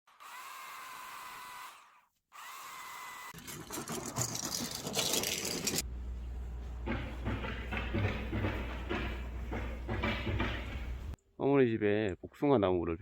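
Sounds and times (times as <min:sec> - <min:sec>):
low steady hum: 0:05.8 - 0:07.3.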